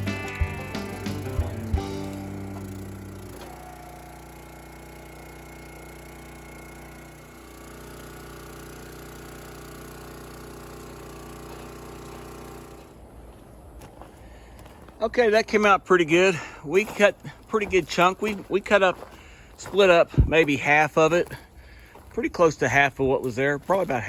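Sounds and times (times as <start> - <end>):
engine idling: 0.0 - 13.3.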